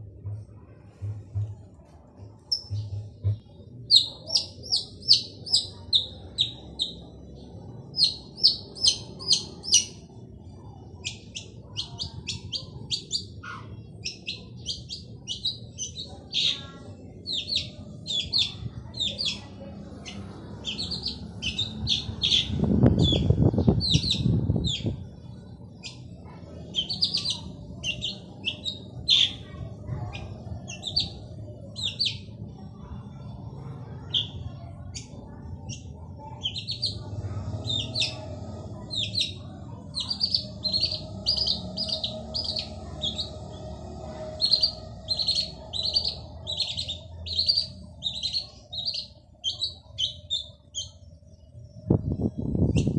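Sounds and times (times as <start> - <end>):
bird chirping sharply: 3.9 - 7.1, 17.2 - 25.0, 26.7 - 29.4, 38.8 - 43.5, 44.3 - 51.0.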